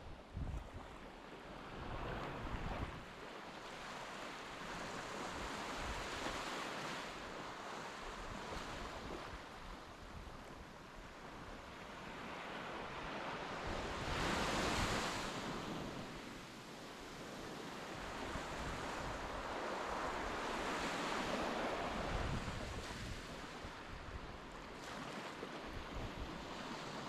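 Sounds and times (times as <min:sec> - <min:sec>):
waves washing onto beach: 0:00.6 - 0:27.0
wind buffeting microphone: 0:21.9 - 0:24.3.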